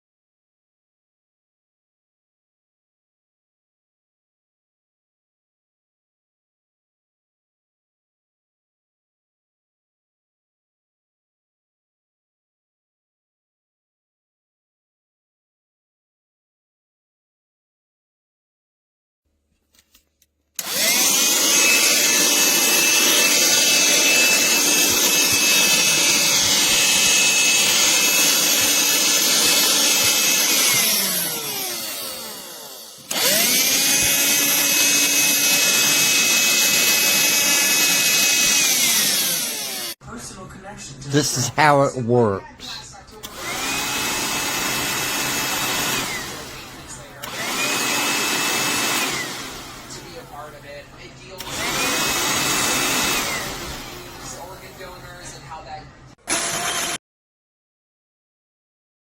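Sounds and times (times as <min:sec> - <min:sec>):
handheld vacuum motor whirring: 0:20.6 - 0:40.0, 0:43.2 - 0:50.8, 0:51.4 - 0:55.1, 0:56.2 - 0:57.0.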